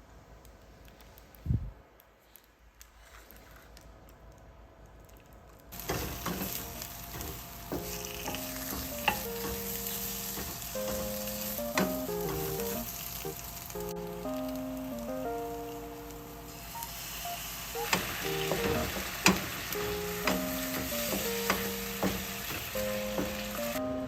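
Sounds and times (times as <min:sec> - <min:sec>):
food sizzling in a pan: 0:05.8 - 0:23.8.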